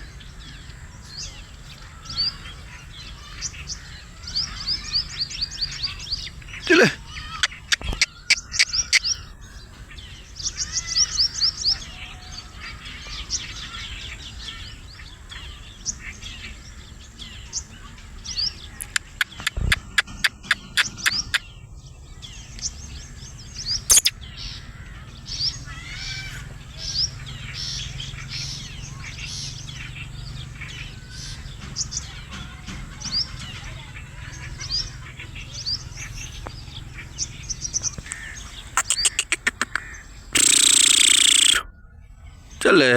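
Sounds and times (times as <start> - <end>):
small birds chirping: 0.0 - 42.9
francolin harsh grating call: 1.8 - 9.6, 18.8 - 21.6, 23.8 - 26.5, 38.1 - 41.7.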